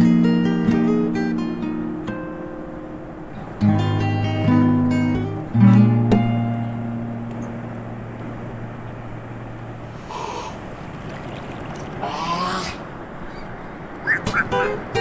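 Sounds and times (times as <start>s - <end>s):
acoustic guitar music: 0.0s - 15.0s
short pitched calls: 9.9s - 15.0s.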